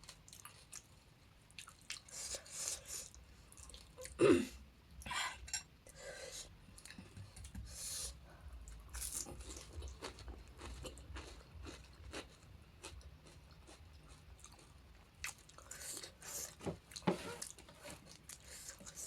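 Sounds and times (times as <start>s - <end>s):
chewing crunchy food: 0.0s - 4.2s, 8.6s - 19.0s.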